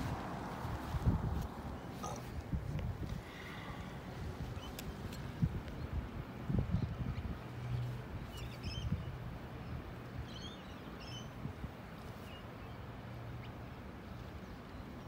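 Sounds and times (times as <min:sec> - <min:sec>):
outdoor background noise: 0:00.0 - 0:15.0
small birds chirping: 0:03.1 - 0:06.0, 0:06.6 - 0:11.4.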